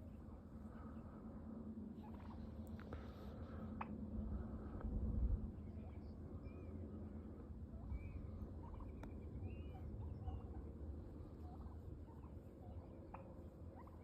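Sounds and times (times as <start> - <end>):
turkey clucking and purring: 2.0 - 2.6, 7.6 - 14.0.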